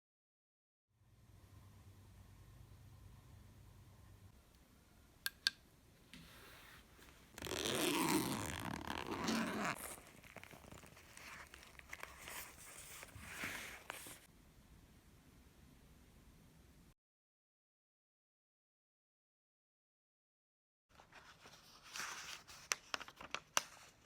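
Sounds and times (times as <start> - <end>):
rustling and crinkling handling noise: 6.5 - 14.3, 20.9 - 24.0.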